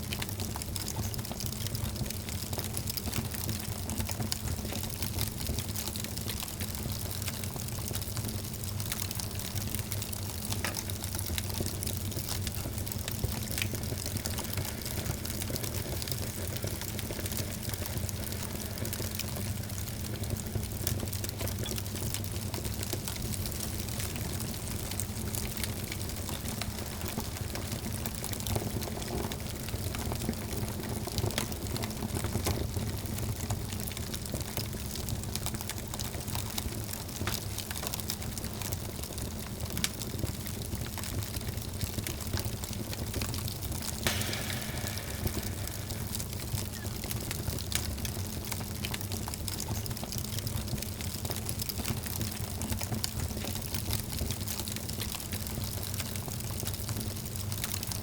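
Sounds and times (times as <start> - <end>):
wood fire crackling: 0.0 - 58.0
low rumble: 44.1 - 47.3.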